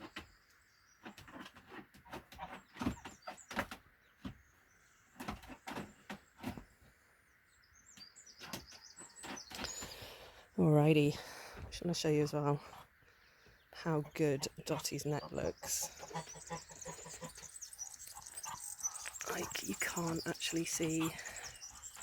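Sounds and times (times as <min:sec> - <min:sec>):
small bird chirps: 0:07.5 - 0:10.4, 0:13.0 - 0:22.0.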